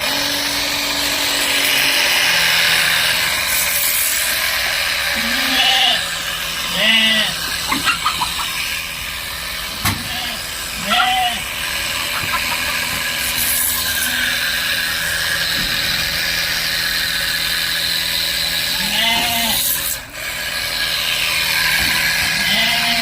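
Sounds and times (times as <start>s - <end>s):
hose sprayer running: 0.0s - 23.0s
goat bleating: 5.1s - 8.6s, 9.8s - 14.5s, 18.7s - 19.8s, 22.3s - 23.0s.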